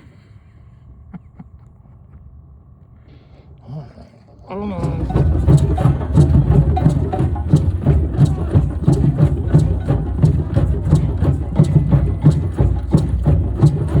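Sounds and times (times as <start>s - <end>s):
drums in driving rhythm: 4.8s - 14.0s.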